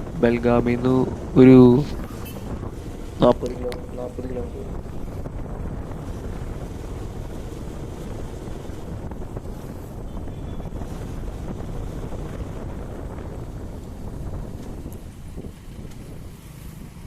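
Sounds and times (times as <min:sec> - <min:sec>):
motorcycle rumble: 0:00.0 - 0:10.0
wind rushing over microphone: 0:00.0 - 0:17.0.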